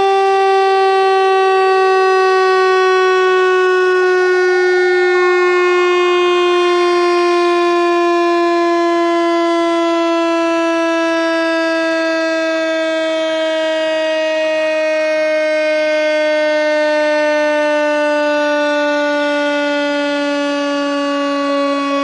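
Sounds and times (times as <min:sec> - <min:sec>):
buzzy electronic tone gliding down: 0:02.8 - 0:08.4.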